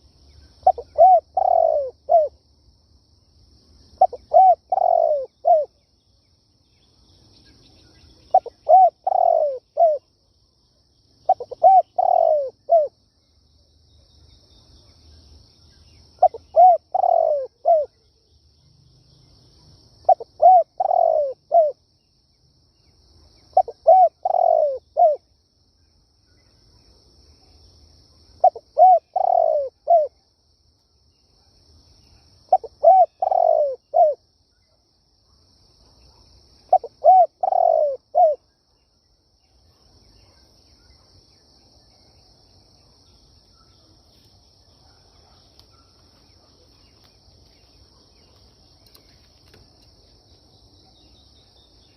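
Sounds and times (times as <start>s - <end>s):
dove cooing: 0.6s - 2.3s, 4.0s - 5.7s, 8.3s - 10.0s, 11.3s - 12.9s, 16.2s - 17.9s, 20.1s - 21.8s, 23.6s - 25.2s, 28.4s - 30.2s, 32.5s - 34.2s, 36.7s - 38.4s.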